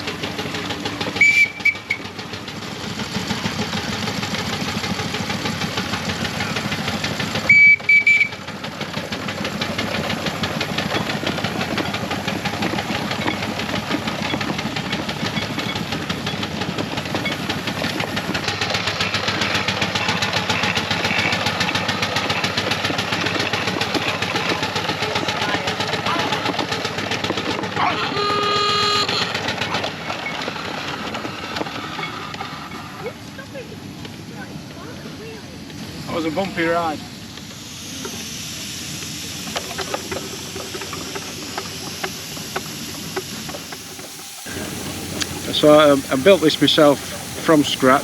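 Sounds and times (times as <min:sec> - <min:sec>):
steam engine exhaust chuffing: 0:00.0 - 0:48.0
steam whistle toots: 0:01.2 - 0:02.0, 0:07.4 - 0:08.4, 0:27.8 - 0:29.5.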